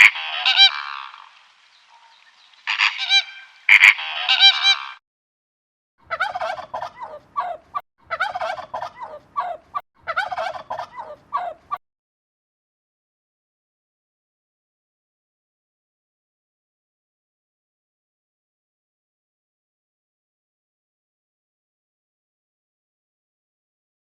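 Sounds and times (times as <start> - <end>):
birds chattering calls: 0.0 - 5.0
farm birds harsh calls: 1.8 - 5.0.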